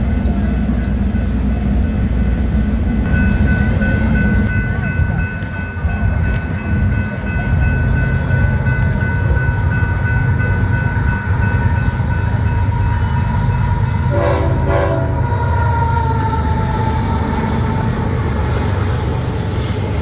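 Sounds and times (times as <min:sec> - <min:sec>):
train rumbling past: 0:00.0 - 0:20.0
train horn blast: 0:12.8 - 0:17.9.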